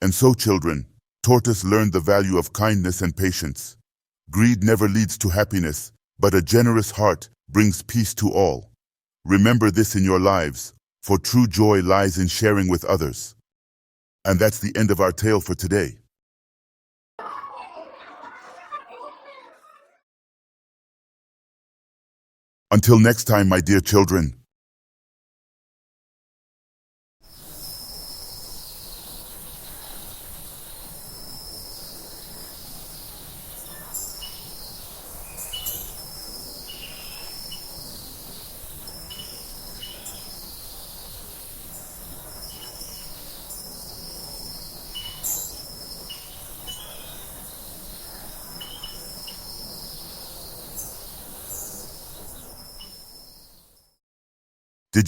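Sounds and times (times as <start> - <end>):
high insect buzz: 27.3 - 53.8
bird-like chirps: 27.3 - 54.0
high trilling call: 32.2 - 53.5.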